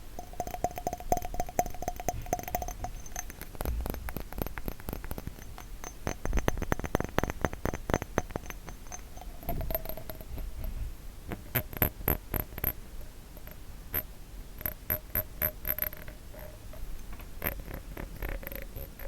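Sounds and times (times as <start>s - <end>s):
faint glass ringing: 0.0s - 10.8s
fingers tapping glass bottle: 0.0s - 12.8s, 13.4s - 19.0s.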